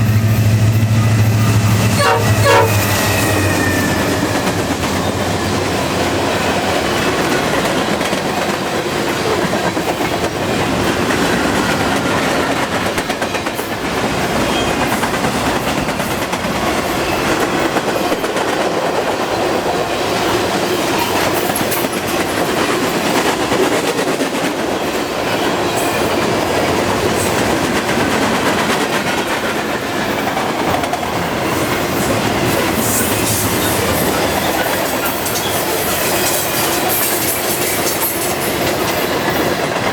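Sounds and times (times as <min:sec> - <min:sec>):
freight train rumbling: 0:00.0 - 0:39.9
steel wheels clattering on rails: 0:01.5 - 0:39.9.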